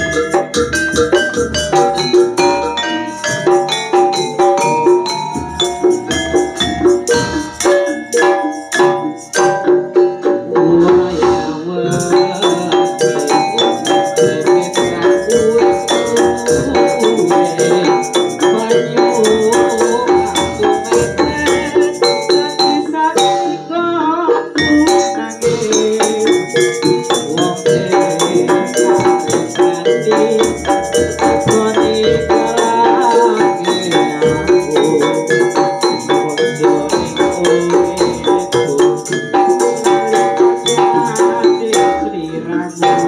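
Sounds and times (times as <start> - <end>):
gamelan ensemble playing: 0.0 - 43.0
wavering melodic line: 0.0 - 43.0.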